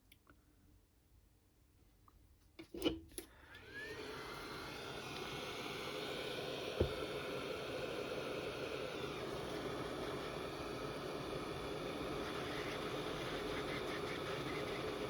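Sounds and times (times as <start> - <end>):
heat gun fan blowing: 3.5 - 15.0.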